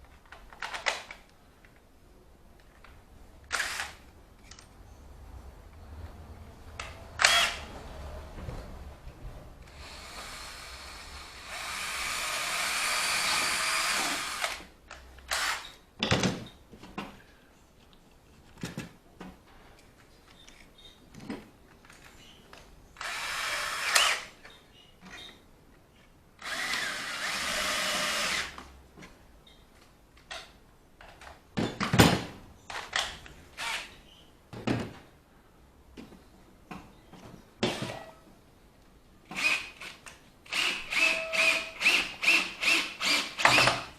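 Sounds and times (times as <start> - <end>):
knocks and clatter of tools: 18.4 - 22.7.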